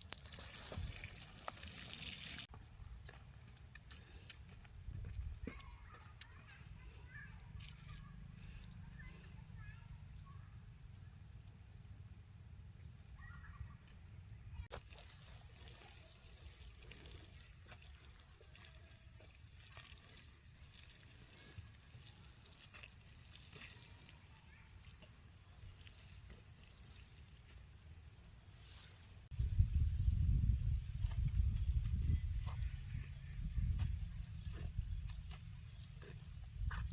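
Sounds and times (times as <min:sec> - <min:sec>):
faint trickle of running water: 0:14.7 - 0:36.3.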